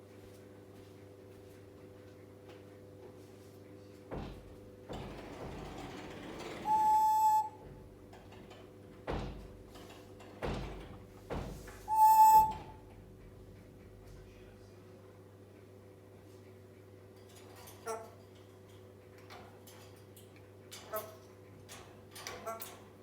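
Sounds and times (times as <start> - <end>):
parrot whistling: 6.7 - 7.6, 11.9 - 12.8.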